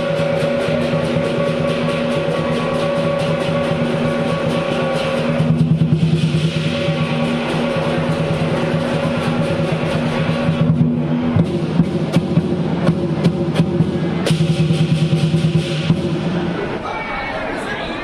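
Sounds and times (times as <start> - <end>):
ringing metal percussion: 0.0 - 12.0
cymbal crashes: 0.0 - 16.8
drum beaten rapidly: 0.0 - 16.8.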